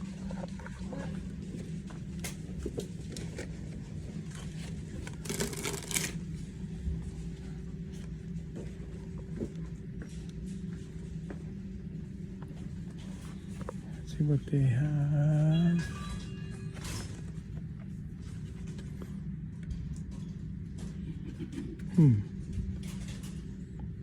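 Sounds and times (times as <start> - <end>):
store hum: 0.0 - 24.0
packaging rustling and clicking: 4.9 - 6.2.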